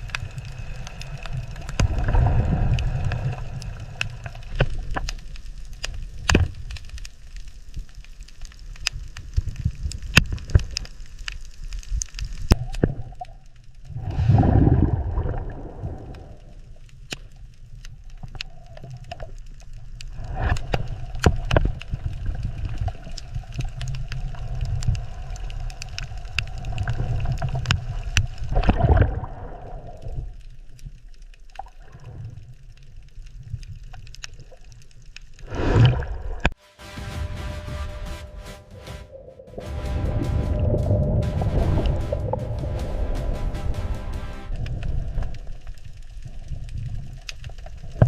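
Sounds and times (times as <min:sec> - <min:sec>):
water gurgling and sloshing: 0:00.0 - 0:05.3, 0:12.6 - 0:17.1, 0:18.0 - 0:36.6
low rumble: 0:36.4 - 0:46.7.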